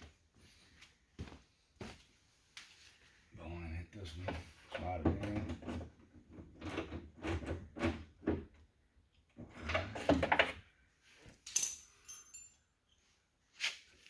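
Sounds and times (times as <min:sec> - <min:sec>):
sharp metallic clink: 0:11.5 - 0:12.6.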